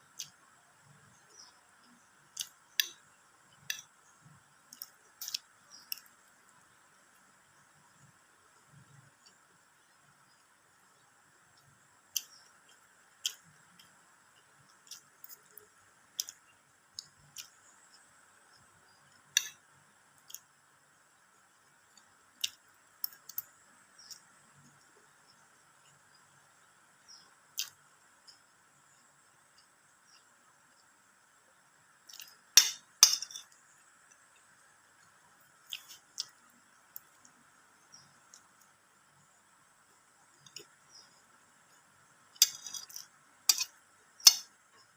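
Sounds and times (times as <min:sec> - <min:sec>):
crisp eating crunches: 0:33.2 - 0:38.8.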